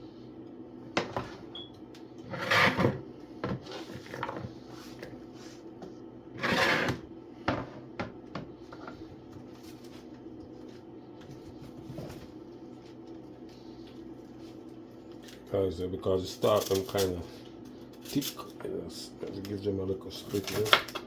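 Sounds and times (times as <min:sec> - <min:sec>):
steady low hum: 0:00.0 - 0:21.0
scrape: 0:02.3 - 0:03.0, 0:03.6 - 0:05.6, 0:06.4 - 0:07.0.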